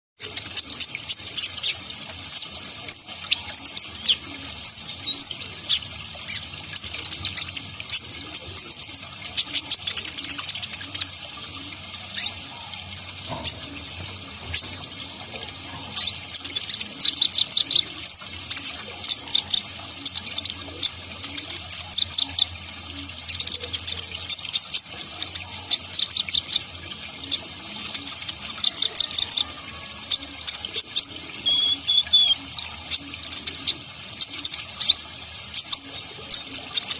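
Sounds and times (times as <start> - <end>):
sunbird chirps and trills: 12.1 - 36.9.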